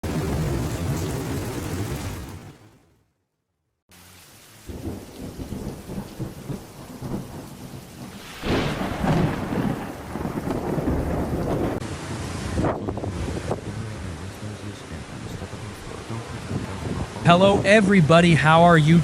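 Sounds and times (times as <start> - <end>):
rumbling thunder: 0.0 - 2.9, 4.7 - 11.8
heavy rain: 0.0 - 3.0, 3.9 - 19.0.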